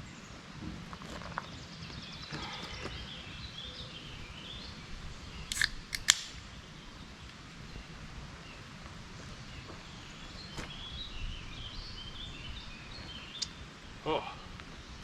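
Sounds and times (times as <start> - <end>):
small songbirds trilling: 1.2 - 5.6, 6.4 - 15.0
sharp clicks: 5.5 - 6.4.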